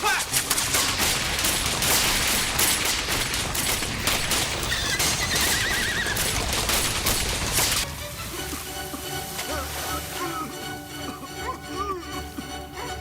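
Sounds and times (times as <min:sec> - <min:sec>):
rapid gunfire: 0:00.0 - 0:07.8
horse whinnying: 0:04.5 - 0:06.5.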